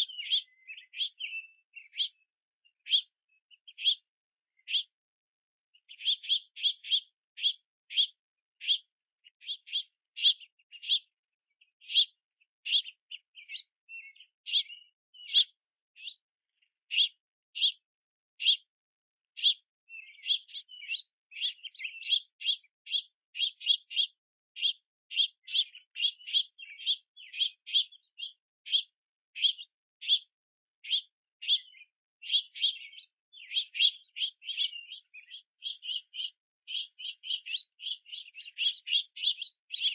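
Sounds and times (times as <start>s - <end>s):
young finches begging chirps: 0.0s - 5.0s, 5.7s - 18.7s, 19.3s - 39.9s.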